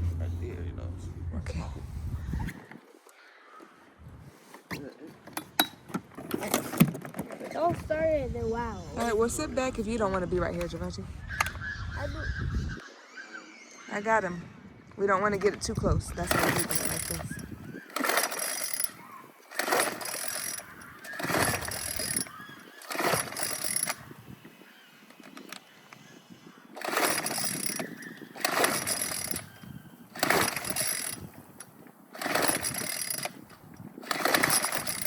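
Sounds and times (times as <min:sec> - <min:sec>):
recoil starter cord whirring: 0:15.0 - 0:35.0.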